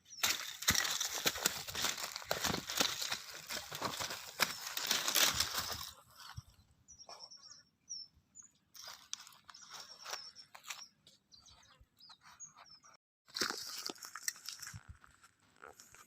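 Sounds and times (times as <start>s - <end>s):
crinkling and crunching: 0.2s - 6.0s, 13.3s - 16.0s
bird chirping: 6.2s - 13.0s.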